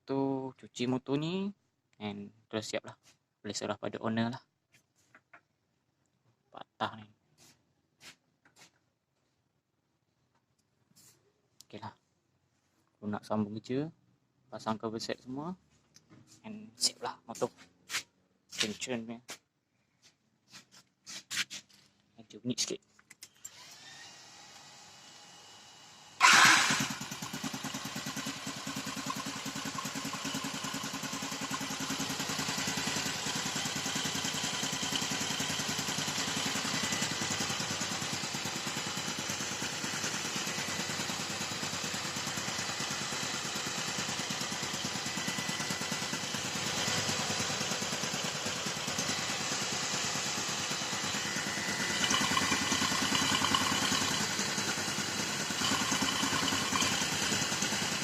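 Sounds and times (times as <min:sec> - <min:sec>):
motorcycle engine idling: 0:26.2 - 0:58.0.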